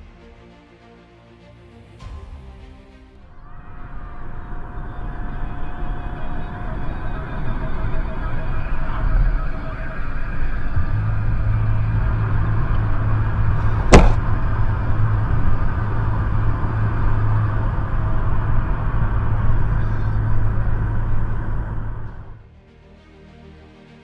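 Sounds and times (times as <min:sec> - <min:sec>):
vehicle engine and road noise: 0:05.3 - 0:22.5
sharp bang: 0:13.7 - 0:14.6.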